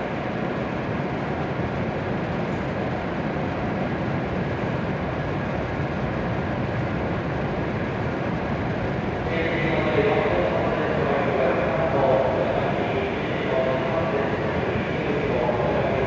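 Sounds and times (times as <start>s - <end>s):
steady rushing noise: 3.9s - 16.0s.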